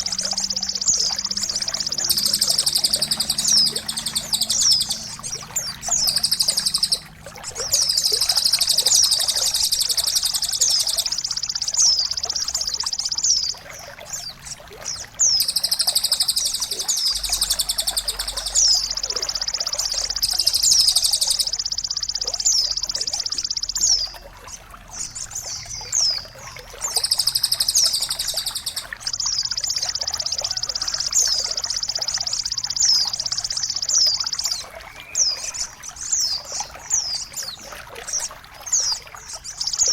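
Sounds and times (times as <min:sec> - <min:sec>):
faint trickle of water: 0:00.0 - 0:39.9
songbird trilling: 0:00.0 - 0:39.9.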